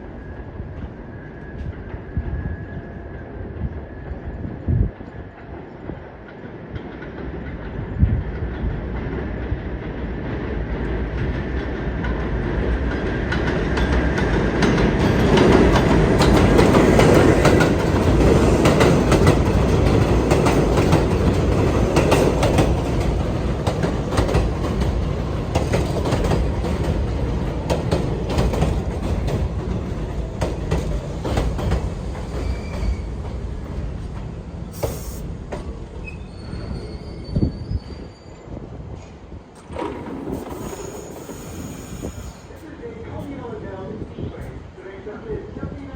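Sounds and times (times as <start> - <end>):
subway train running past: 0.0 - 45.9
wheels clicking over rail joints: 39.6 - 41.4.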